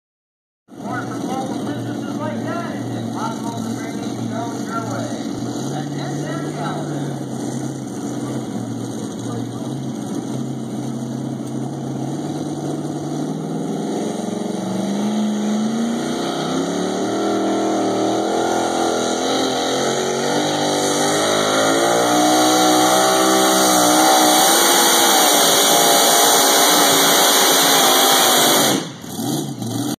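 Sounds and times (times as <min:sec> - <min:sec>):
truck engine running hard under load: 0:00.9 - 0:18.2.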